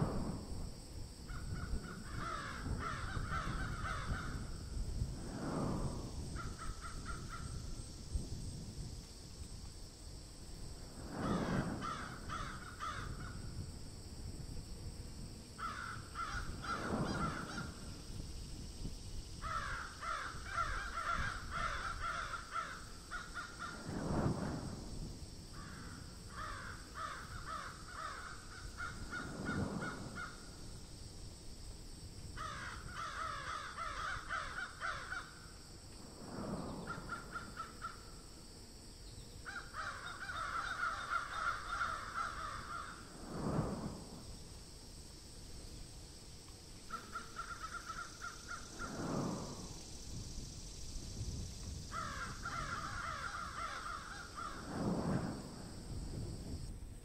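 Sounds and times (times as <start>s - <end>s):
steady high hiss: 0.0s - 57.0s
low rushing swell: 43.1s - 44.6s, 48.7s - 50.2s.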